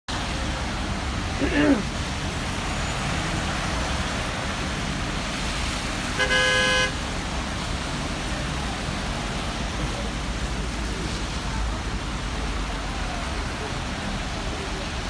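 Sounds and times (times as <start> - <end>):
traffic on wet street: 0.1 - 15.0
car horn: 6.1 - 7.0.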